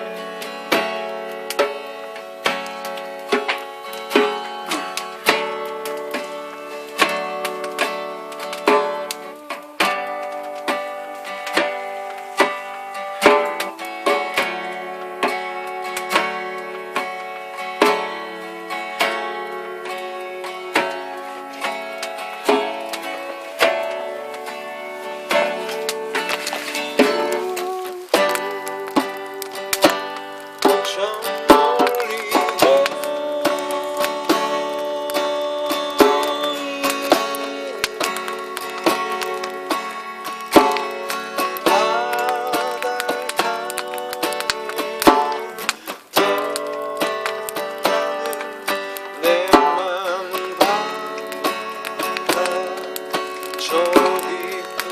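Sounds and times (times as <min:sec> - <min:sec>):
acoustic guitar chords: 0:00.0 - 0:54.9
djembe drumming: 0:25.3 - 0:30.0.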